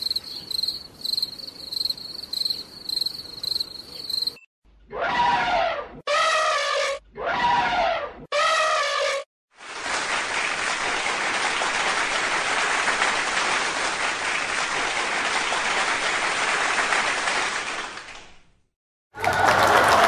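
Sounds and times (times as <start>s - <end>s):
crowd applauding: 9.6s - 18.3s, 19.2s - 20.0s.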